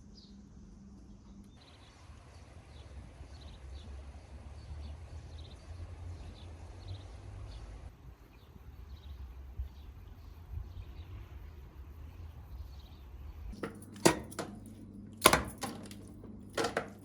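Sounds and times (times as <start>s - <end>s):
small birds chirping: 1.0s - 3.9s, 4.6s - 13.6s.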